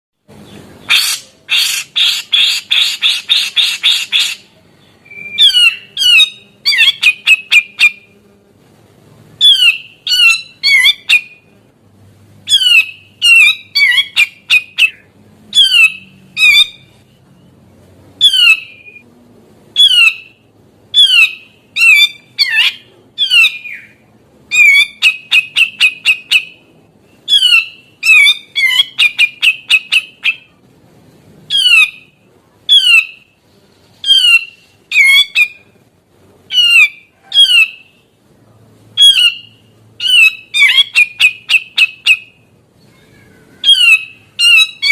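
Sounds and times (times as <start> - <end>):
bird harsh rasping notes: 0.5 - 8.3, 12.4 - 19.0, 31.5 - 35.8.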